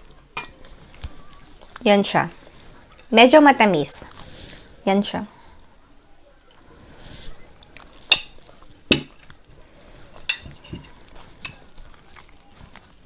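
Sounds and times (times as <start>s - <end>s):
cutlery clinking against plate: 0.4s - 0.7s, 8.0s - 9.4s, 10.2s - 12.1s.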